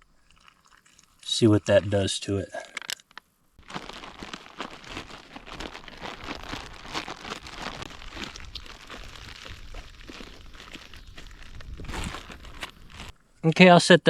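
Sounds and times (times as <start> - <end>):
dough mixed by hand crackling: 3.6 - 13.2.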